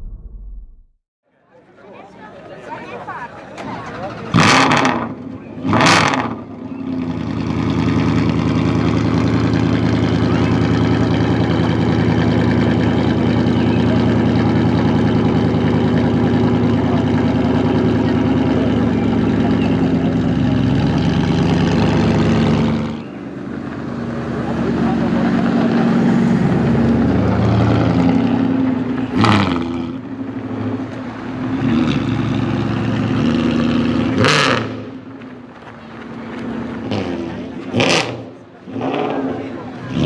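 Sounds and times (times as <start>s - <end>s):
car engine running loudly: 4.4s - 40.0s.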